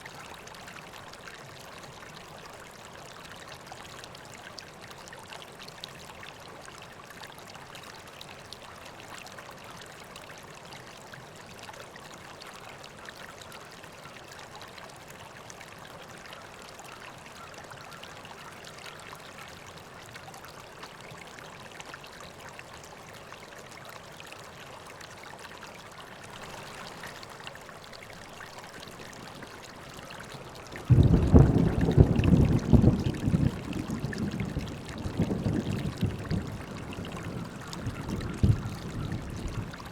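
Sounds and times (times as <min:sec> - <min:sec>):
river water flowing: 0:00.0 - 0:39.9
low rumble of thunder: 0:30.6 - 0:39.9.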